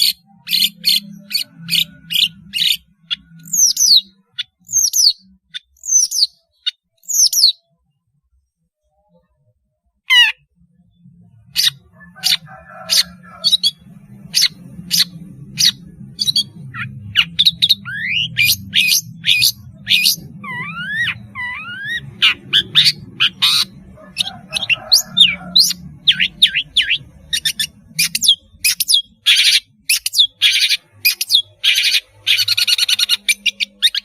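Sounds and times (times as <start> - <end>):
low hum: 10.4 - 29.3
shrike singing sharp calls: 11.4 - 34.0.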